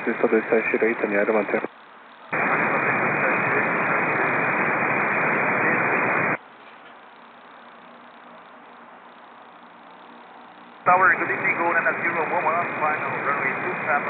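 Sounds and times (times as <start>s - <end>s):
radio static hiss: 0.0s - 6.4s, 7.0s - 14.0s
faint steady hum: 0.0s - 14.0s.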